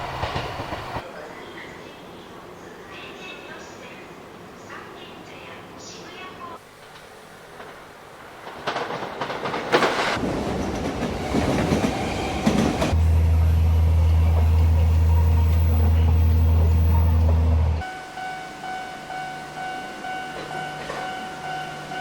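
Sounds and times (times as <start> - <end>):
train rattling on rails: 0.0 - 1.0, 6.8 - 17.8, 19.6 - 22.0
train low drone: 10.2 - 22.0.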